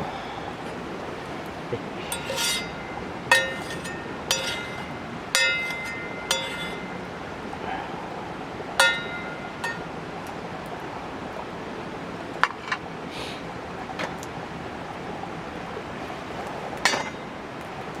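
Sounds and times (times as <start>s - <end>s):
rushing background noise: 0.0s - 18.0s
metal cookware clinking: 2.0s - 7.4s, 8.8s - 10.0s, 16.9s - 17.2s.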